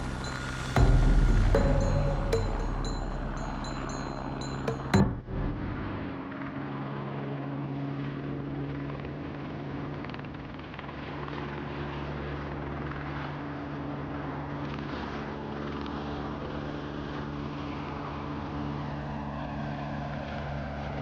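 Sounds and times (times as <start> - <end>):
engine droning: 0.0 - 13.7.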